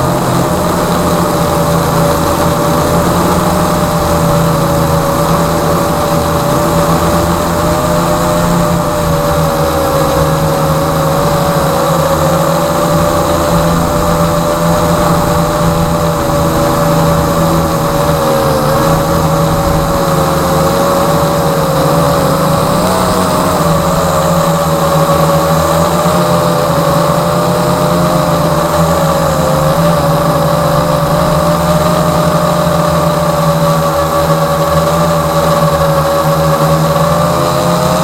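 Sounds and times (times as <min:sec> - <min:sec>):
low steady hum: 0:00.0 - 0:35.8
quadcopter propellers whining: 0:00.0 - 0:38.0.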